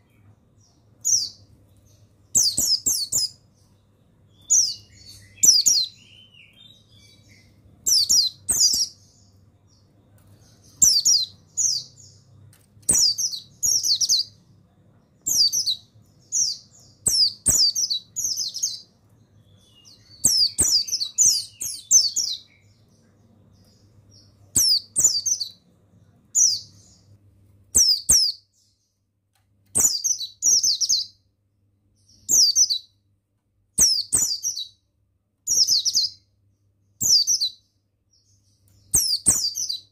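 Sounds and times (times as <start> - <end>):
faint low hum: 0.0 - 39.9
bird high falling chirps: 1.0 - 3.5, 4.3 - 12.2, 12.8 - 14.4, 15.2 - 22.9, 23.5 - 25.6, 29.7 - 31.2.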